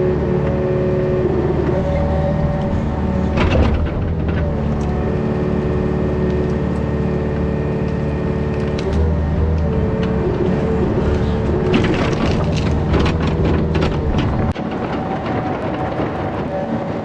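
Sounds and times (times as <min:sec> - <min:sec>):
diesel engine running hard: 0:00.0 - 0:17.0
sharp cracks and clatter: 0:11.1 - 0:17.0.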